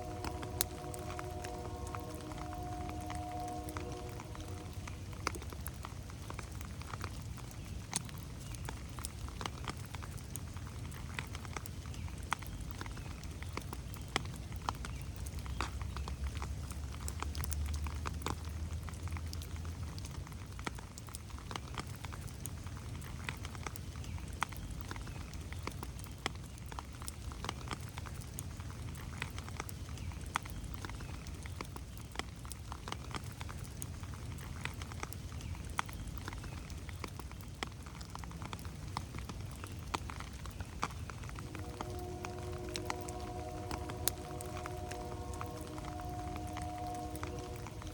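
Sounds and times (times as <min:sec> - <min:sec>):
low rumble: 0:00.0 - 0:06.0, 0:41.3 - 0:47.9
raindrops pattering on leaves: 0:00.0 - 0:47.9.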